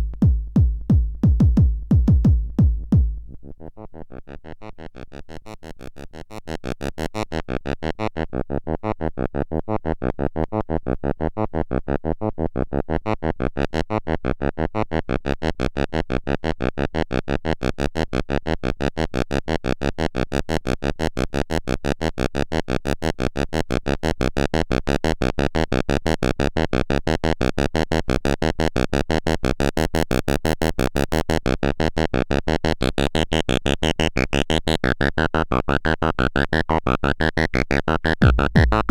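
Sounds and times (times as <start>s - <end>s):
synthesizer pulse pattern: 38.0s - 38.9s.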